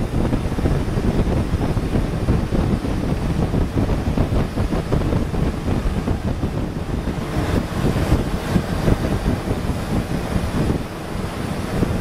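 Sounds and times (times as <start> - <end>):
boat engine rumbling: 0.0 - 12.0
wind buffeting microphone: 0.0 - 12.0.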